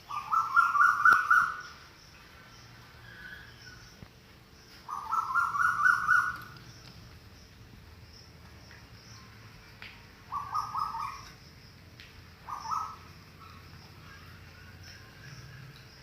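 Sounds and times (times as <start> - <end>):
high-pitched animal calls: 12.4 - 15.4.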